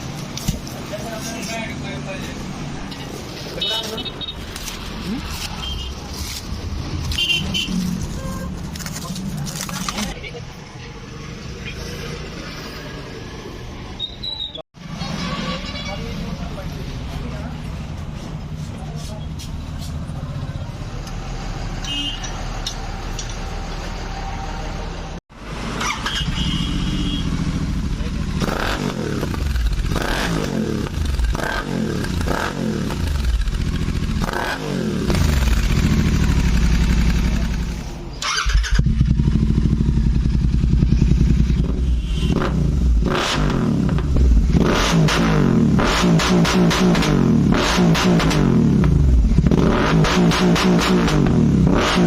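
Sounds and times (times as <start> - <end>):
motorcycle engine revving: 25.6 - 52.0.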